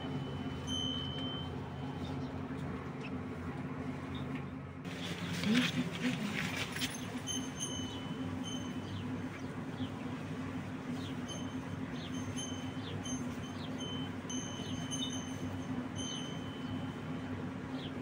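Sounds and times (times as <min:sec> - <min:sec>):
low steady hum: 0:00.0 - 0:18.0
small birds chirping: 0:04.0 - 0:18.0.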